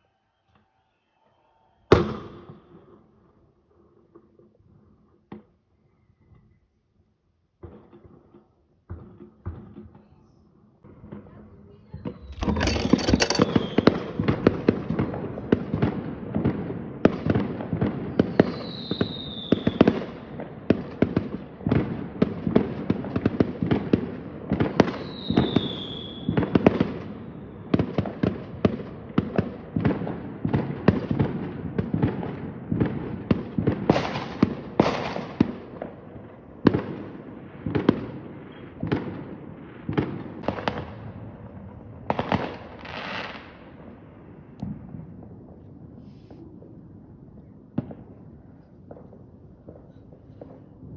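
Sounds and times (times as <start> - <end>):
fireworks bangs and crackling: 7.6 - 10.0, 10.9 - 50.9
falling firework whistles: 18.4 - 19.8.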